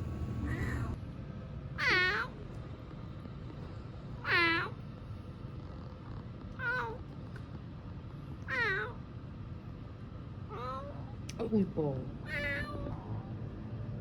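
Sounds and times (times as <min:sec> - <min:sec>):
steady low hum: 0:00.0 - 0:14.0
kitten meowing: 0:00.4 - 0:01.0, 0:12.3 - 0:13.0.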